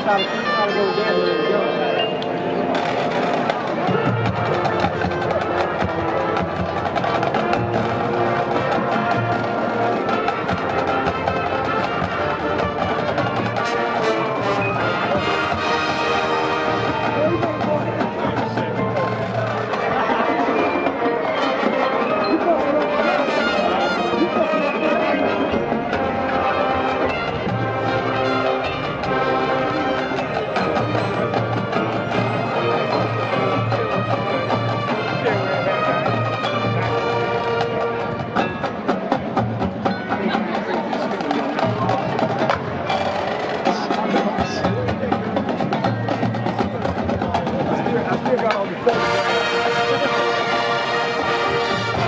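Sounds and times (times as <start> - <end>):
low brass notes: 0.0 - 46.5, 47.3 - 52.0
wind chords: 0.0 - 52.0
mallet and drum percussion: 14.4 - 52.0.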